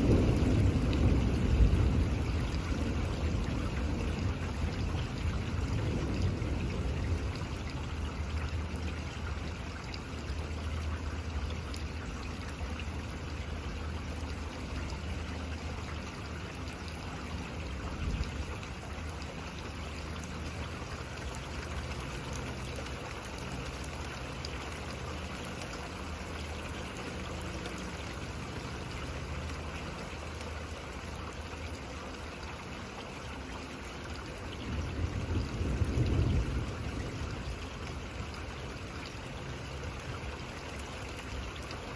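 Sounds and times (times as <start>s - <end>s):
thunder rumbling: 0.0s - 8.4s, 34.6s - 38.2s
steady rain falling: 0.0s - 41.9s.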